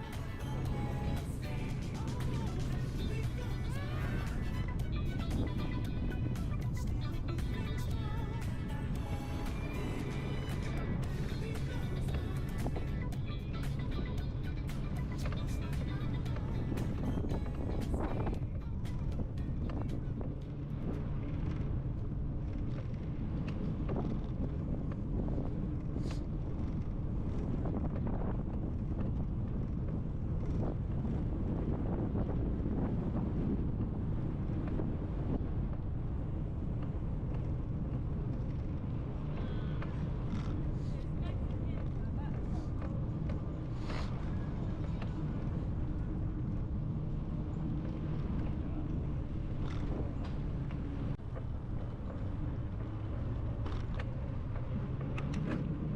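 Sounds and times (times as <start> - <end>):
wind buffeting microphone: 0.0 - 55.9
light ticks: 49.6 - 55.7.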